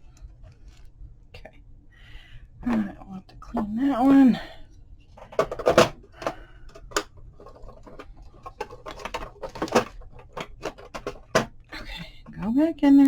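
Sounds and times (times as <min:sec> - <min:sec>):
hands handling small items: 0:05.1 - 0:11.5.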